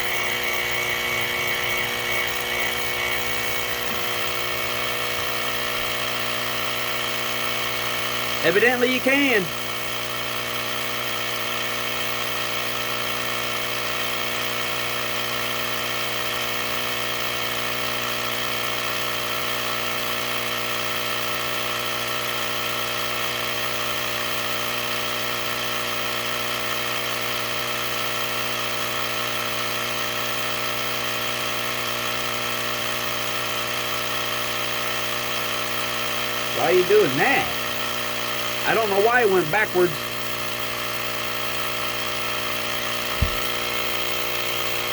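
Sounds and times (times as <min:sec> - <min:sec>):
electric air compressor humming: 0:00.0 - 0:12.8, 0:34.2 - 0:44.9.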